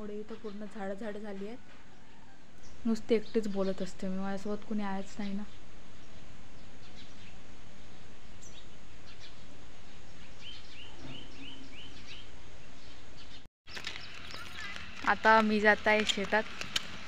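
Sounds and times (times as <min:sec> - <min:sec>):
steady outdoor noise: 0:00.0 - 0:17.0
small bird chirping: 0:01.9 - 0:15.0.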